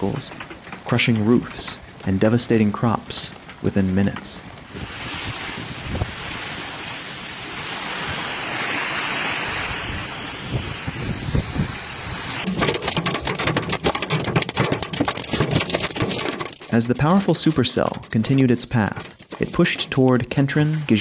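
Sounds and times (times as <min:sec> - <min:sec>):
heavy rain downpour hiss: 0:00.0 - 0:12.5, 0:20.5 - 0:21.0
hailstones clattering on surfaces: 0:00.0 - 0:21.0.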